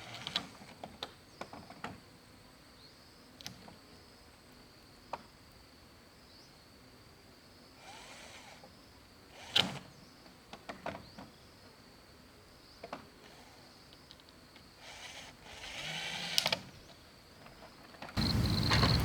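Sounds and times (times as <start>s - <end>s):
sharp knocks and clatter: 18.2s - 19.0s.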